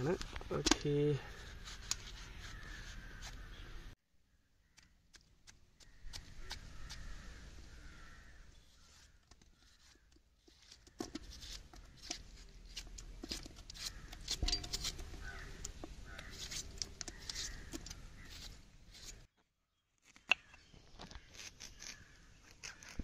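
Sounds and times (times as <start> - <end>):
knife cutting watermelon: 8.9 - 19.3
chunks dropping into metal pot: 14.4 - 15.1.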